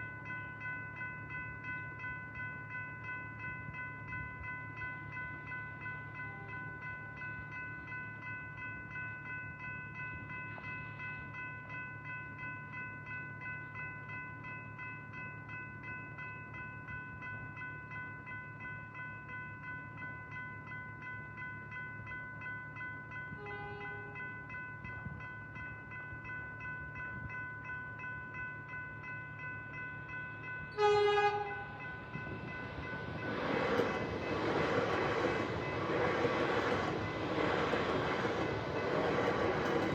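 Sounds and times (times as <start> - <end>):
train horn: 23.4 - 24.2, 30.7 - 31.8
approaching train noise: 30.7 - 39.9.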